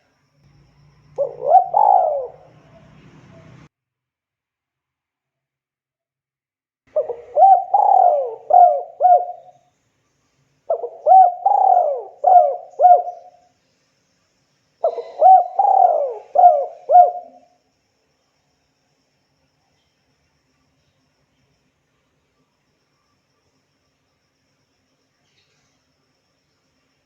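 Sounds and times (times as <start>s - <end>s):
dove cooing: 1.2s - 3.7s, 6.9s - 9.5s, 10.7s - 13.4s, 14.8s - 17.5s.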